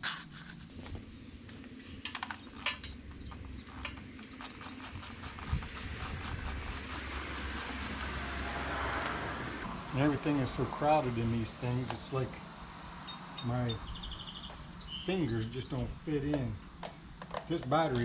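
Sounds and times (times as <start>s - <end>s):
ratchet wrench clicking: 0.8s - 9.6s.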